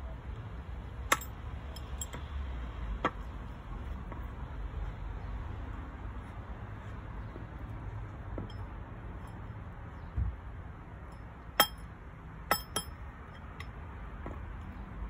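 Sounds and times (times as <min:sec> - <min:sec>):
hammer tap on metal: 0:12.5 - 0:13.0.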